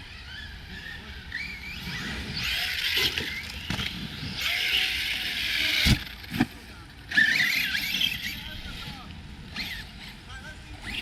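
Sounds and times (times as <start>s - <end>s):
electric motor whine: 0.0s - 6.4s.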